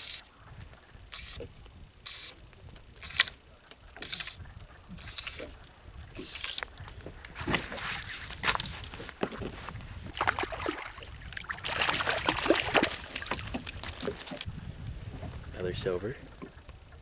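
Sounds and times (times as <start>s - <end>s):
water splashing and sloshing: 3.2s - 14.5s, 16.1s - 16.8s.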